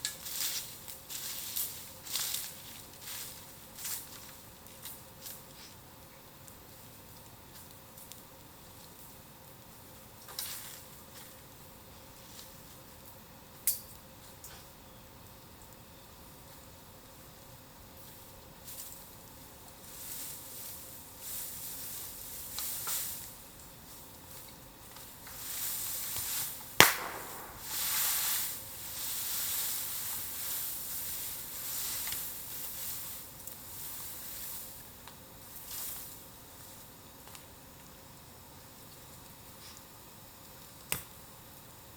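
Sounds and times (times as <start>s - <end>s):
steam hissing from burning bamboo: 0.0s - 41.9s
bamboo segment popping: 26.8s - 28.2s.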